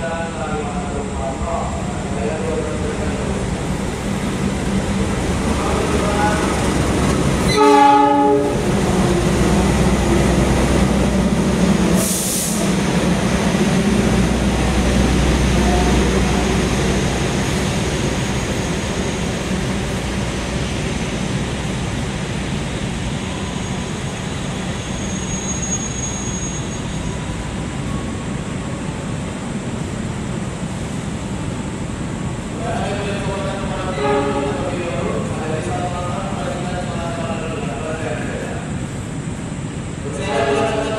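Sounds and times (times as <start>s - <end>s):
train cars rumbling on rails: 0.0s - 40.9s
train horn: 7.4s - 8.6s, 33.9s - 34.7s
faint high squeal: 23.4s - 28.1s.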